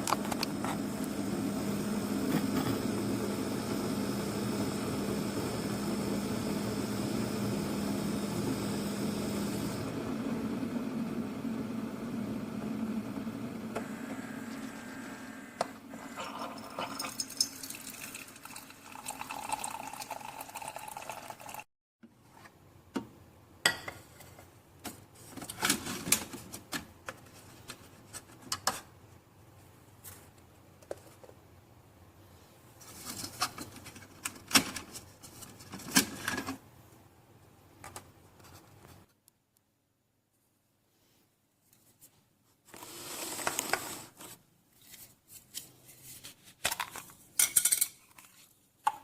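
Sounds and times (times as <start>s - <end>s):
coffee maker humming: 0.0s - 21.6s, 42.7s - 44.2s.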